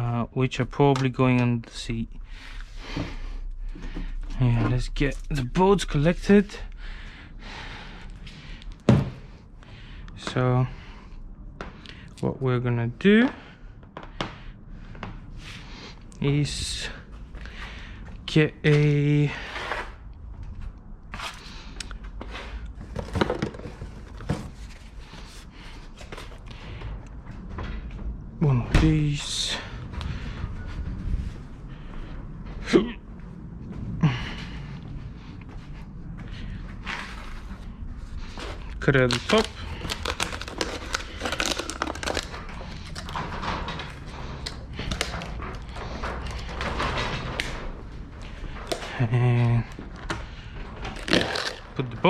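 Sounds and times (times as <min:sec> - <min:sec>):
objects being handled and set down: 0:22.8 - 0:26.4
material crinkling and rustling: 0:36.8 - 0:50.1, 0:50.8 - 0:52.0.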